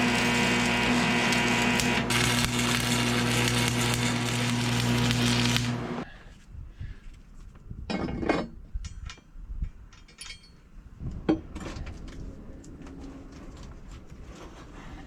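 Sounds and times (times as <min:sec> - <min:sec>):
metal tools clinking and scraping: 0:07.9 - 0:10.7.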